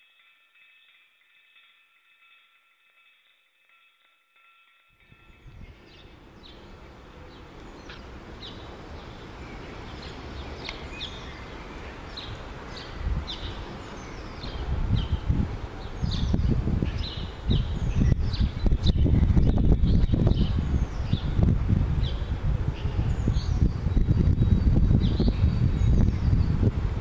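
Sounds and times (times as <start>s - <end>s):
wind buffeting microphone: 5.0s - 27.0s
songbird chirping: 5.2s - 21.4s.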